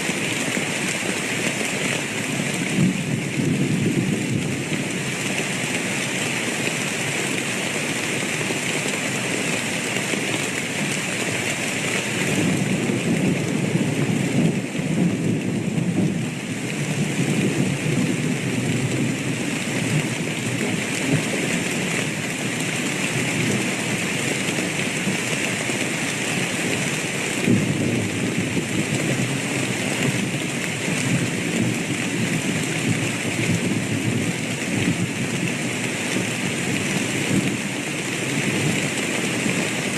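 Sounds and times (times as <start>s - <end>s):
heavy rain falling: 0.0s - 39.9s
thunder rumbling: 2.6s - 4.9s, 27.4s - 38.4s.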